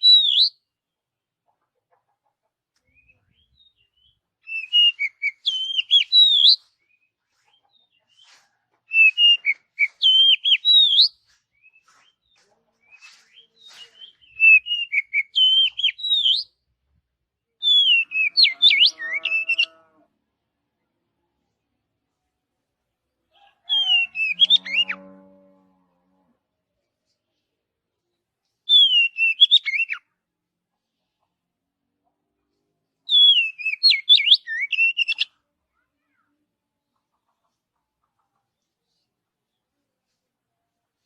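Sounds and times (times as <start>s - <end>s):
bird singing whistled notes: 0.0s - 0.6s, 3.0s - 7.0s, 8.9s - 11.9s, 13.3s - 16.6s, 17.6s - 19.8s, 28.7s - 30.0s, 33.1s - 35.3s.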